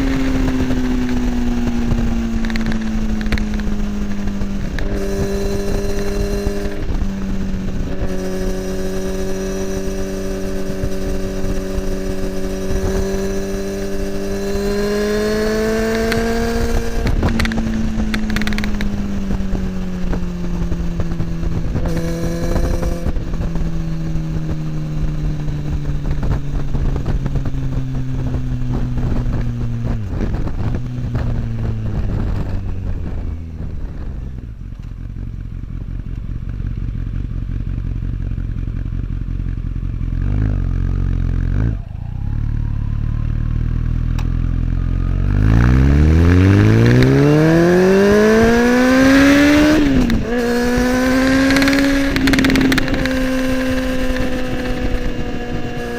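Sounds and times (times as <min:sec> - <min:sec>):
motorcycle gear change: 0:00.0 - 0:24.1, 0:46.2 - 0:55.9
motorcycle engine revving: 0:00.0 - 0:55.9.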